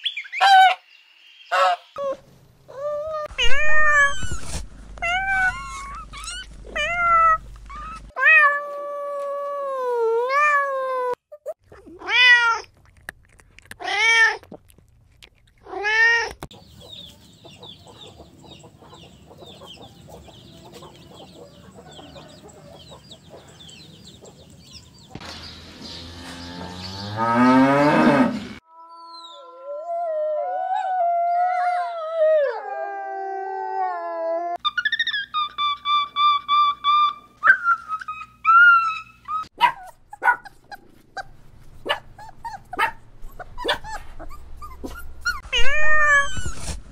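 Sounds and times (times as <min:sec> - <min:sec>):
chickens calling: 0:00.0 - 0:02.2, 0:16.5 - 0:28.6
kitten meowing: 0:03.3 - 0:08.8, 0:44.8 - 0:46.8.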